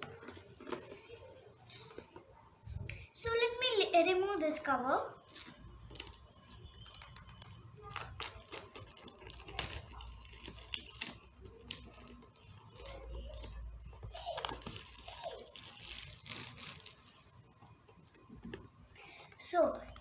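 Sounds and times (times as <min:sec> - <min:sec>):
packaging rustling and tearing: 0:05.2 - 0:17.4.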